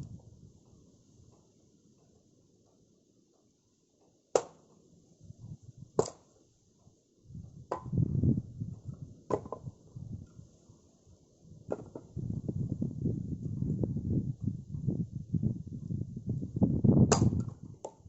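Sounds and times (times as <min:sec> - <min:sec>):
axe chopping firewood: 0:04.3 - 0:04.6, 0:06.0 - 0:06.3, 0:07.7 - 0:08.0, 0:09.3 - 0:09.7, 0:11.7 - 0:12.1, 0:17.1 - 0:18.0.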